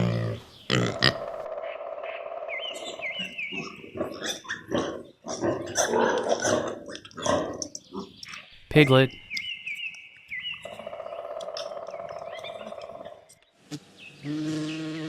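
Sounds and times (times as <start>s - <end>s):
pigs squealing and grunting: 0.0s - 8.4s.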